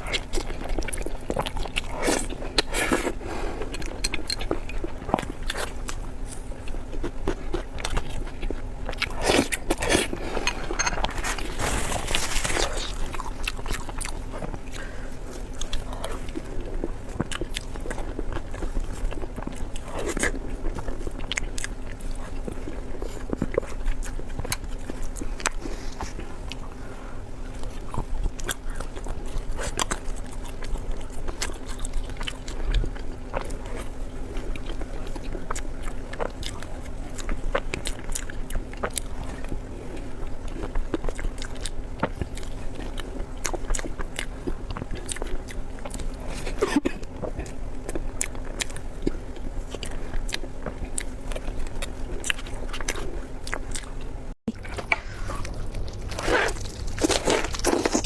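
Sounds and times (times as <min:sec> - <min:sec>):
person chewing food: 0:00.0 - 0:58.0
steady low hum: 0:00.0 - 0:58.0.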